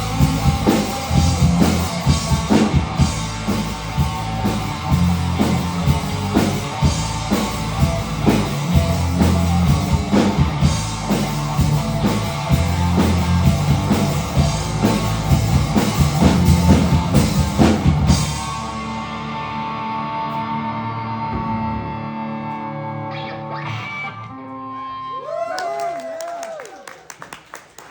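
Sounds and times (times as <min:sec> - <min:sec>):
drum kit: 0:00.0 - 0:20.3
rock band playing live: 0:00.0 - 0:25.0.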